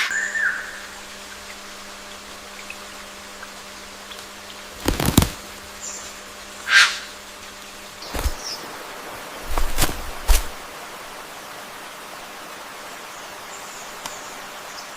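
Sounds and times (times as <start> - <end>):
faint steady hum: 0.0 - 14.9
wings flapping: 4.7 - 5.6, 8.0 - 8.6, 9.4 - 10.7.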